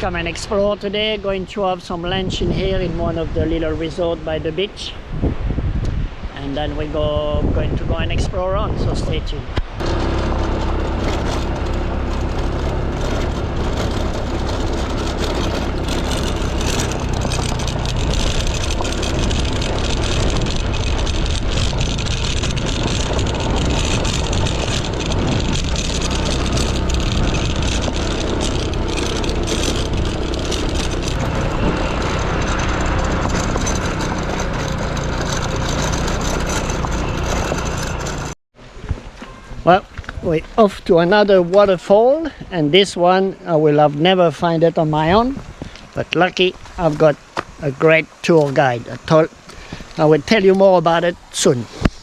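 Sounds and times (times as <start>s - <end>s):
road and wind noise: 0.0s - 52.0s
vehicle engine running: 9.8s - 38.4s, 48.1s - 51.9s.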